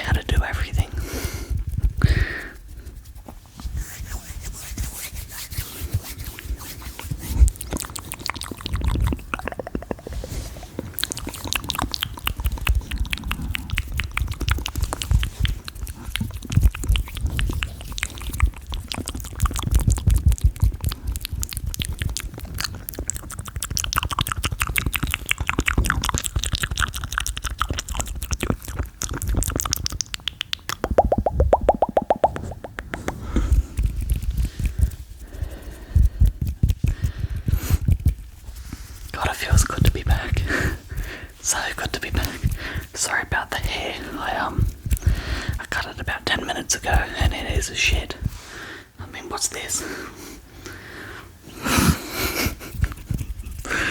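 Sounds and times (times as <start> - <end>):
mouth clicks and pops: 6.2 - 38.3, 39.0 - 48.4.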